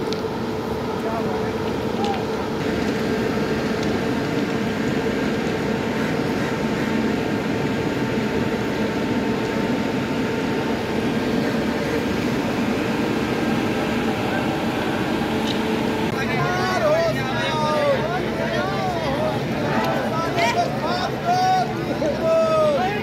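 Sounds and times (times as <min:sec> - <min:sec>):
train machinery drone: 0:00.0 - 0:23.0.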